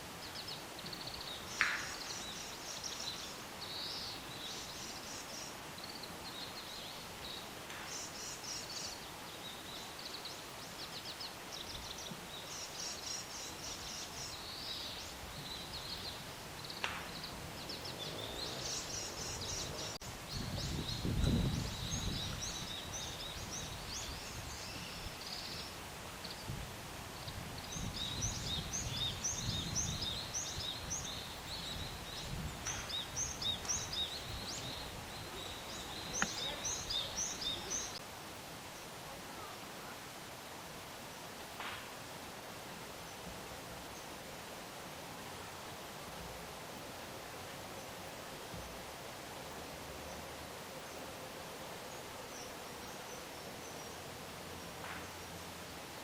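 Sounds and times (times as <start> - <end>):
small birds chirping: 0.1 - 38.0.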